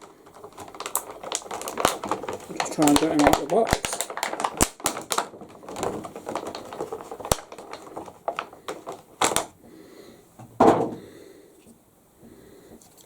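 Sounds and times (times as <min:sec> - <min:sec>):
packaging rustling: 0:00.0 - 0:09.6.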